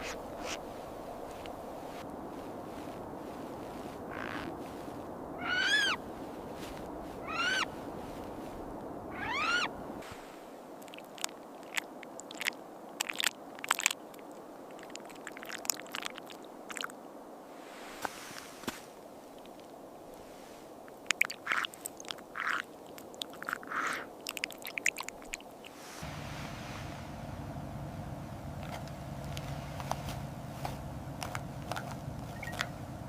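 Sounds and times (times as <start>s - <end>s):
owl calls: 4.1s - 4.5s, 5.4s - 7.8s, 9.1s - 9.8s, 21.4s - 22.7s, 23.5s - 24.1s, 31.3s - 32.8s.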